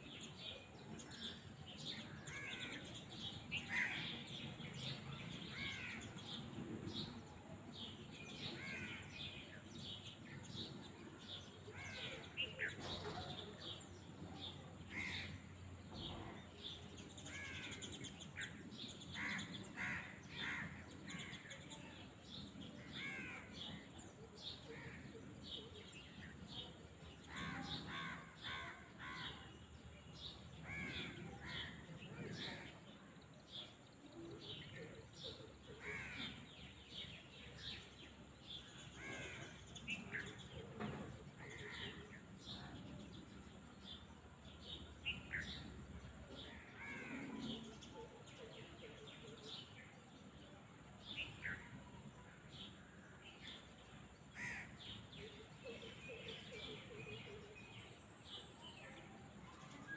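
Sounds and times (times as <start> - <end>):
birds calling: 51.1 - 59.2.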